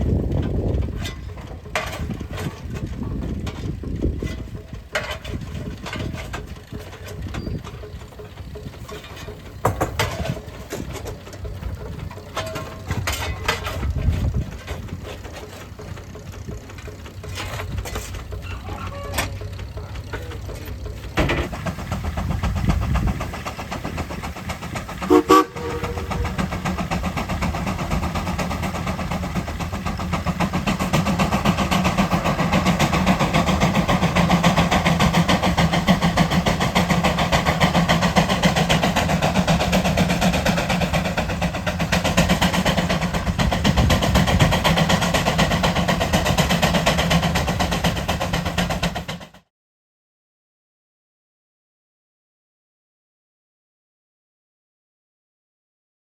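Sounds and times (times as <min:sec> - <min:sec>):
steam whistle blast: 0:25.0 - 0:26.4.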